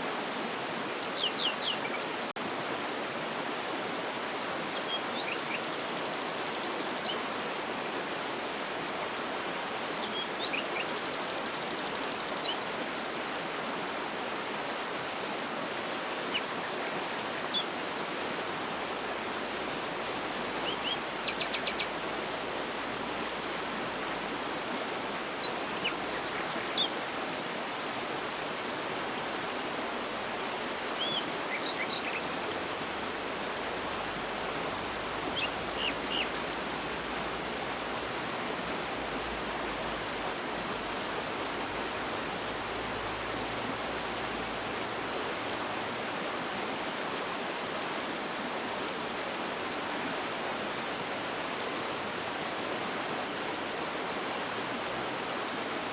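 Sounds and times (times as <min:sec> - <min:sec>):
waterfall rushing: 0:00.0 - 0:55.9
bird calls and trills: 0:00.7 - 0:02.3, 0:04.7 - 0:07.3, 0:09.9 - 0:12.7, 0:15.7 - 0:18.7, 0:20.3 - 0:22.2, 0:24.8 - 0:27.0, 0:30.9 - 0:32.4, 0:34.8 - 0:37.5.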